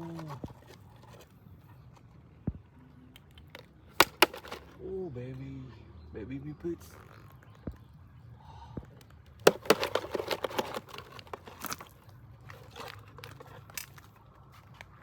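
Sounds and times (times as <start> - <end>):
crinkling crunching crackles: 8.9 - 15.0.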